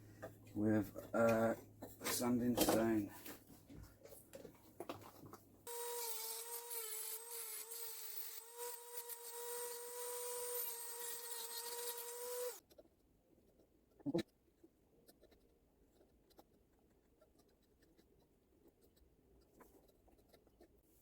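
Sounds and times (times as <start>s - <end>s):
rotary tool grinding metal: 5.7s - 12.6s.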